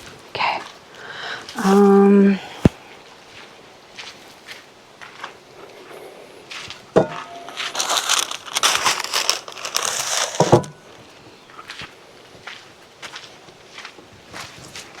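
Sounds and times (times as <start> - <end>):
packaging crinkling by hand: 7.3 - 11.0.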